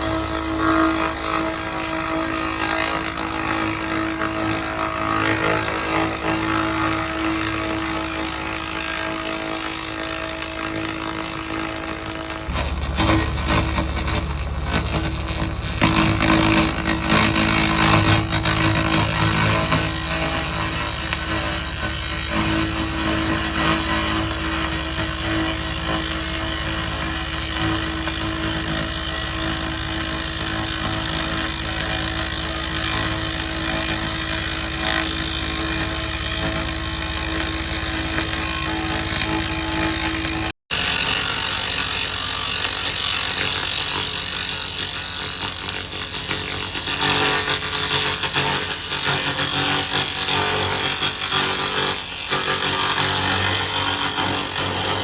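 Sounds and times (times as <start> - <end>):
underlying hum: 0.0 - 33.4
laser rust remover hissing: 9.6 - 29.6.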